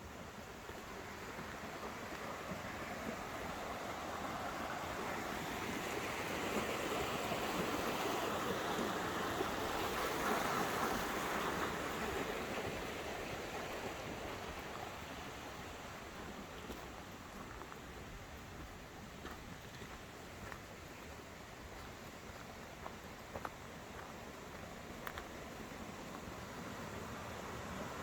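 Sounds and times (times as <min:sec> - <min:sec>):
rushing stream water: 0:00.0 - 0:28.0.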